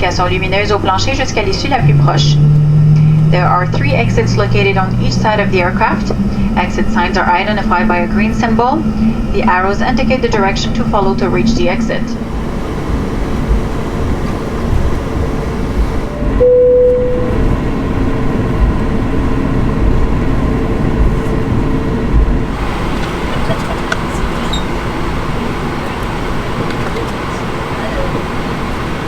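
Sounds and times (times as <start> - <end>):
aircraft cabin rumble and hiss: 0.0 - 29.0
brief steady tone: 16.1 - 17.6.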